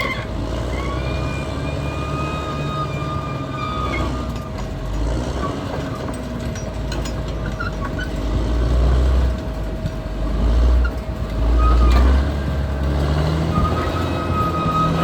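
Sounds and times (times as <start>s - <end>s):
bulldozer diesel engine rumbling: 0.0s - 15.0s.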